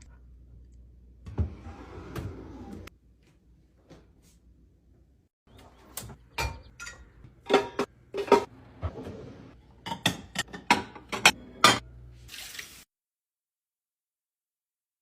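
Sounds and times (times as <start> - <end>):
glass jars clinking: 6.4 - 8.4.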